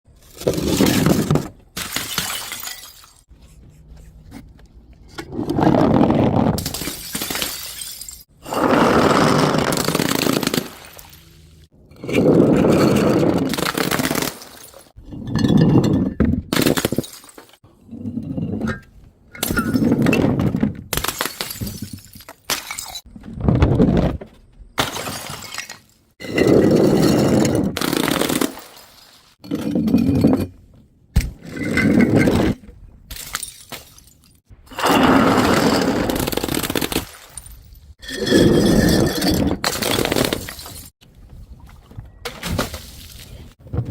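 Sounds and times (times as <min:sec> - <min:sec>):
glass bottles smashing: 0:00.7 - 0:03.3, 0:06.6 - 0:08.3, 0:13.5 - 0:17.6, 0:19.4 - 0:20.2, 0:21.0 - 0:23.1, 0:24.8 - 0:29.2, 0:33.1 - 0:34.4, 0:35.4 - 0:40.9.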